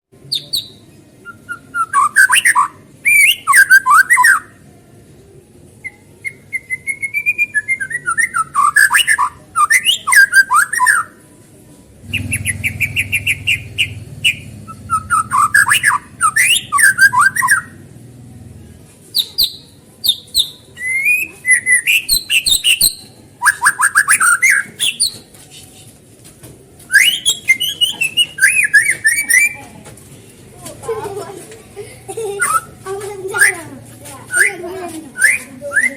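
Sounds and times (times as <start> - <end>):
bird singing whistled phrases: 0.3 - 4.5, 5.8 - 11.1, 12.1 - 17.8, 19.2 - 25.2, 26.9 - 29.6, 35.2 - 35.9.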